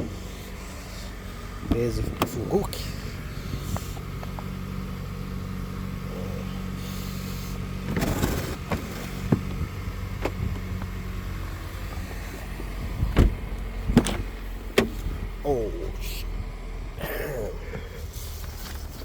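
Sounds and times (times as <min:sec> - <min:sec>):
car engine idling: 0:00.0 - 0:19.0
scraping rustle: 0:07.3 - 0:09.6, 0:18.0 - 0:19.0.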